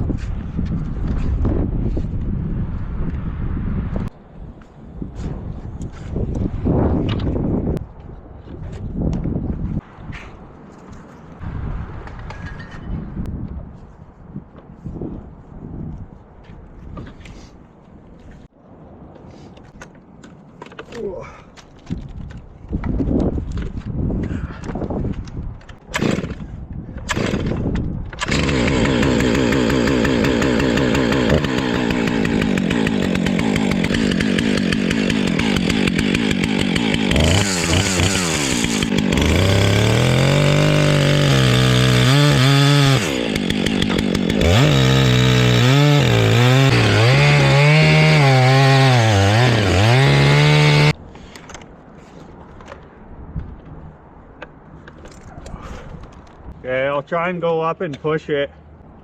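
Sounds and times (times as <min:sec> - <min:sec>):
chainsaw cutting wood: 0:25.8 - 0:51.0.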